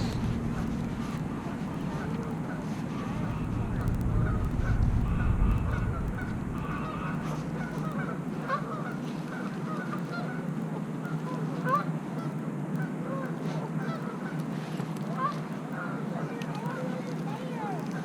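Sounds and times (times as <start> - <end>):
low rumble: 0.0 - 8.8
geese honking: 0.0 - 18.0.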